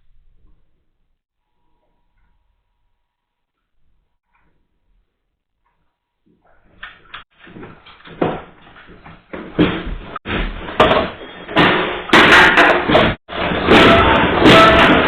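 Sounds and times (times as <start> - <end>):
objects rattling and banging: 6.6 - 15.0
sharp slams: 9.6 - 15.0.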